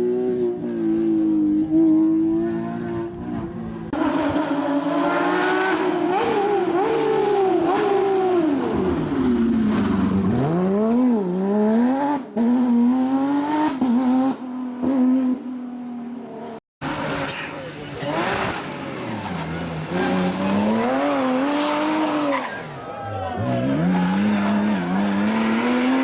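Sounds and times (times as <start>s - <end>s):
racing car engine revving: 16.4s - 22.8s, 23.4s - 26.0s.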